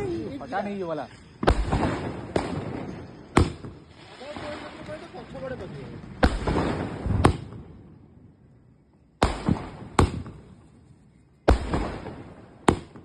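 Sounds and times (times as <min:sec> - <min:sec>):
firework bangs: 0:01.4 - 0:07.8, 0:09.2 - 0:10.6, 0:11.4 - 0:13.0.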